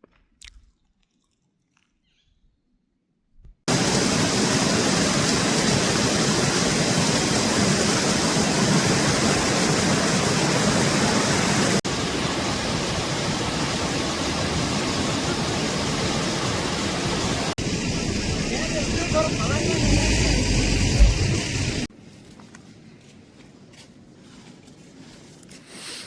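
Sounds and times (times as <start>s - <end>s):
heavy rain pouring: 3.7s - 21.9s.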